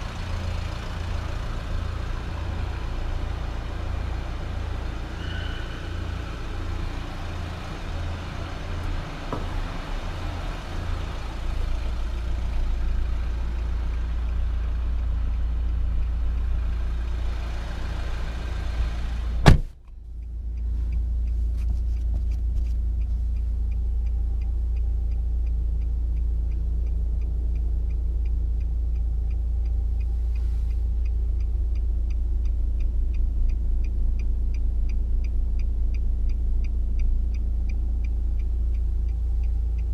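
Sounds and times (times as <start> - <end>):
car engine idling: 0.0 - 39.9
faint regular ticking: 6.4 - 18.6, 19.8 - 39.9
car door shutting: 8.8 - 9.9, 19.3 - 19.8.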